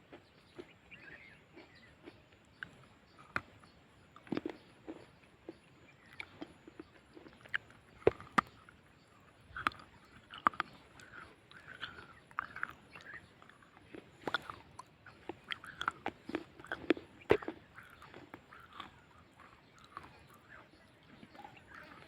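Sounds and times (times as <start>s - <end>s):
soft grinding chews: 0.0s - 22.0s
person crunching hard chunks: 4.2s - 5.1s, 6.0s - 8.8s, 9.5s - 20.5s.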